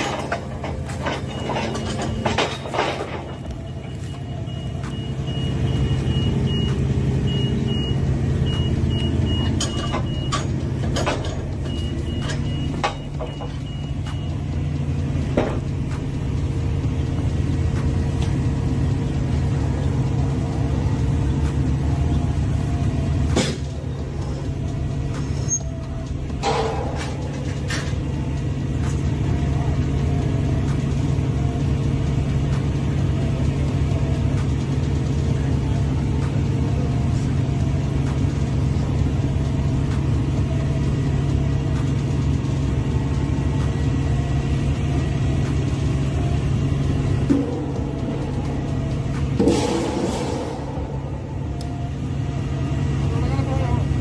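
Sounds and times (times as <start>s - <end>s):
knocks and clanks: 0.0s - 4.2s, 9.2s - 14.4s, 15.1s - 18.4s, 23.2s - 24.3s, 25.1s - 29.2s, 47.1s - 51.8s
reversing alarm beeping: 0.0s - 34.4s
heavy diesel machinery running: 0.0s - 54.0s.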